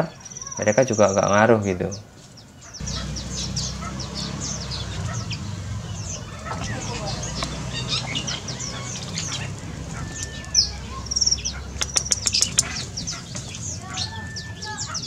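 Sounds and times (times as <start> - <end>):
small birds chirping: 0.0 - 15.0
whistled bird note: 2.8 - 15.0
sharp clicks: 11.8 - 12.8.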